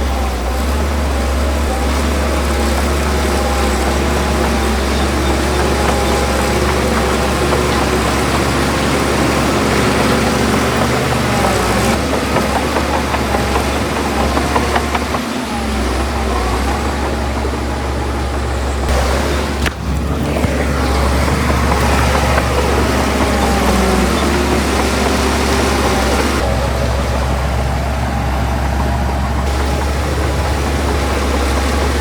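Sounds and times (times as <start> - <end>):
diesel engine drone: 0.0 - 32.0
rough mechanical clatter: 0.0 - 32.0.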